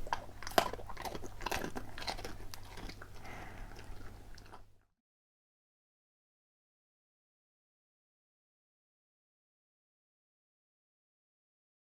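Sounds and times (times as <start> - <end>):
dog crunching a biscuit: 0.0 - 4.8.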